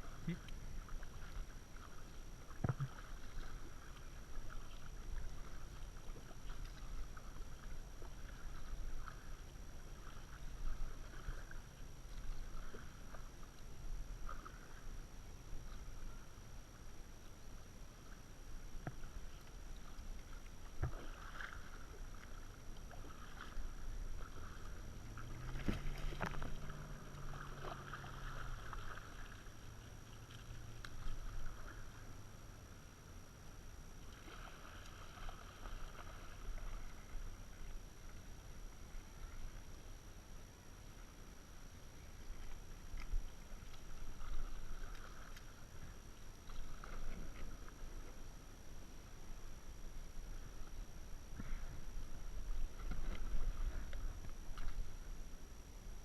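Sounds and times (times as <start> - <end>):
low hum: 0.0 - 56.0
paddle splashing water: 0.0 - 56.0
low rumble: 22.4 - 33.8.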